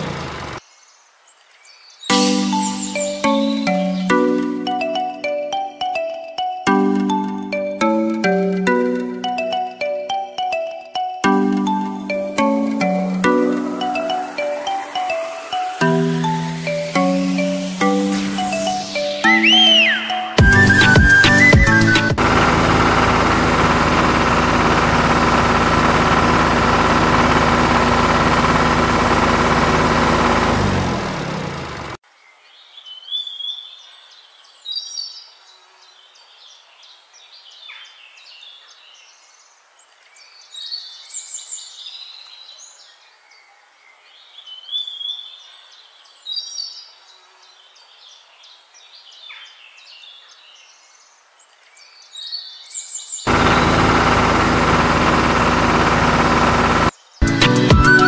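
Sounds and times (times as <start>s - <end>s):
steady engine: 0.0s - 0.6s, 20.4s - 32.0s, 53.3s - 58.0s
songbird chirps: 0.0s - 22.1s, 32.0s - 53.8s
loud steady sound: 17.6s - 31.9s, 53.3s - 58.0s.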